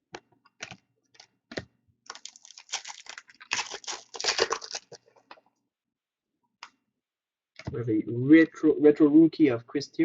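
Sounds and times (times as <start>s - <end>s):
foil wrapper tearing and crinkling: 2.1s - 5.2s.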